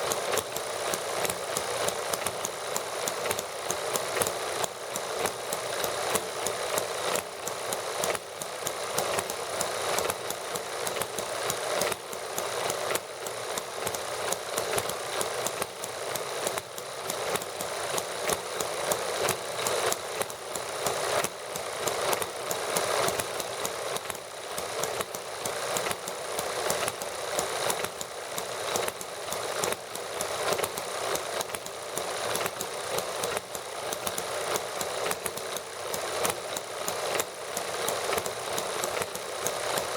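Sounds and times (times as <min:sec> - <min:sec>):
small model engines clattering: 0:00.0 - 0:39.9.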